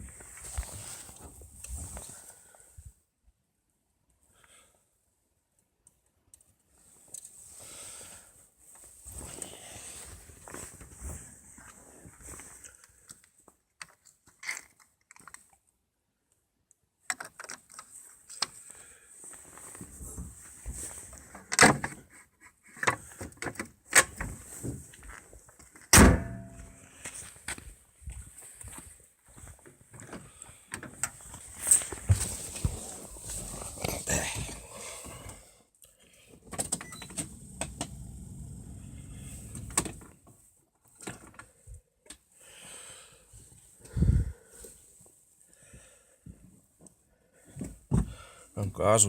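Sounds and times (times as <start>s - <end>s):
shuffling noise: 0.0s - 2.3s, 31.2s - 34.6s
low rumbling noise: 37.3s - 39.9s.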